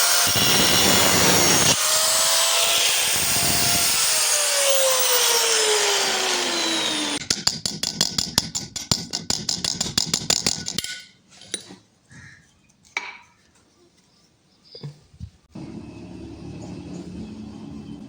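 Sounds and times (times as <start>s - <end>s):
power tool spinning down: 0.0s - 7.2s.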